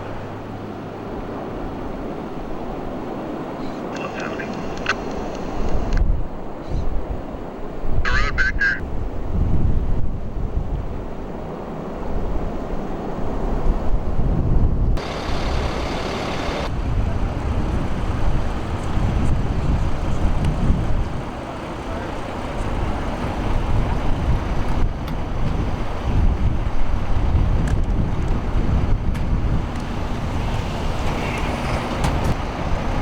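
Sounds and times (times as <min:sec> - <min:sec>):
motor vehicle engines rumbling: 0:14.9 - 0:33.0.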